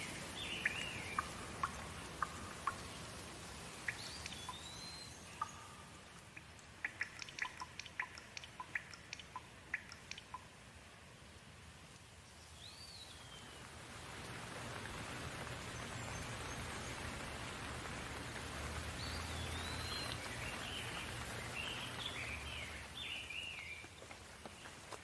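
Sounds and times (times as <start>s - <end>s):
bird chirping: 0.0s - 3.1s, 3.7s - 10.5s, 12.2s - 13.7s, 19.0s - 24.7s
rain falling: 0.0s - 25.0s.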